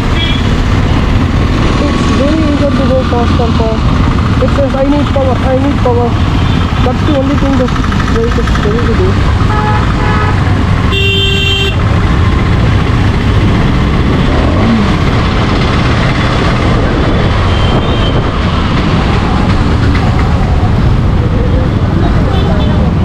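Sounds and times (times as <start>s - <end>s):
motorcycle engine running: 0.0s - 23.0s
wind and road noise: 0.0s - 23.0s
vehicle horn: 0.2s - 0.5s, 9.5s - 11.8s.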